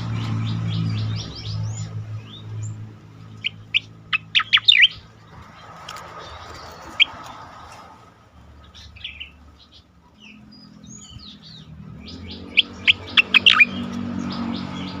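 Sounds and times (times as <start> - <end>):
bird singing sharp notes: 0.0 - 5.1, 8.7 - 15.0.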